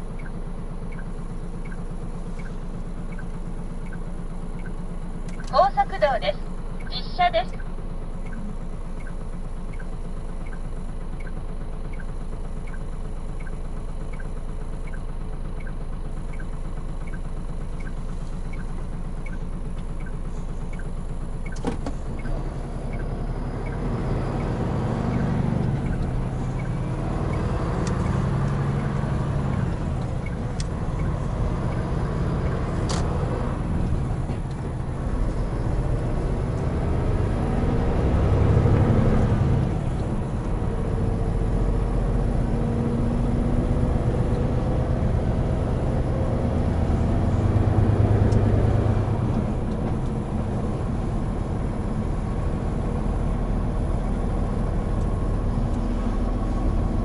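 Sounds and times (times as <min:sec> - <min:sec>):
indicator ticking: 0:00.0 - 0:32.6
truck diesel engine running: 0:00.0 - 0:57.0
click: 0:04.6 - 0:05.5, 0:48.3 - 0:48.5.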